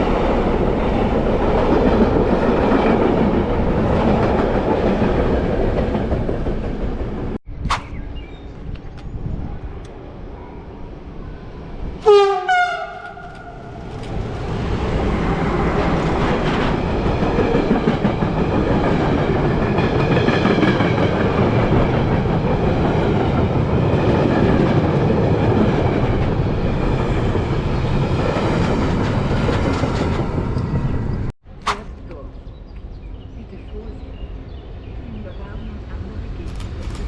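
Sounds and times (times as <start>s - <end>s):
train wheels rushing on rails: 0.0s - 7.4s, 11.1s - 31.3s
train horn blast: 12.0s - 13.6s.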